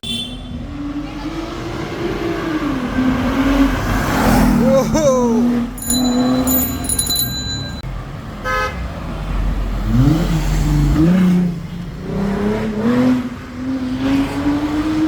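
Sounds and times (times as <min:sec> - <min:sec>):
car horn toot: 0:00.0 - 0:00.5, 0:08.4 - 0:08.8
car engine revving and accelerating: 0:00.6 - 0:04.7, 0:09.2 - 0:15.0.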